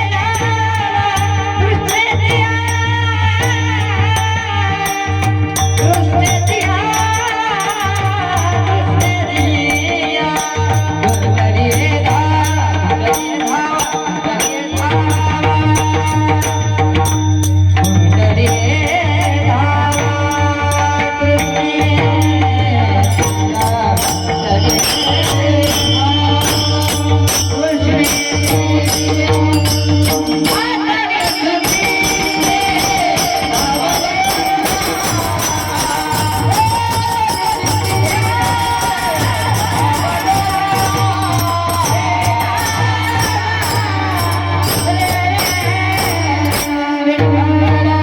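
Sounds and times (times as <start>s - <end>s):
jingling percussion: 0.0s - 48.0s
held instrumental tones: 13.1s - 47.6s.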